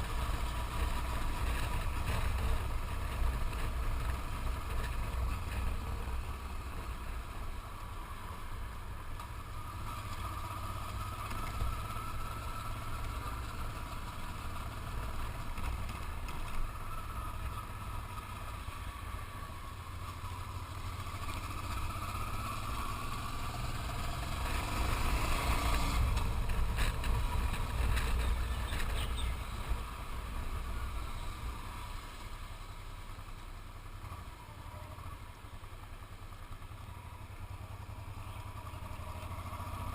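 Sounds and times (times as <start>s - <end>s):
motorcycle engine running: 0.0s - 39.9s
clatter: 24.4s - 29.8s.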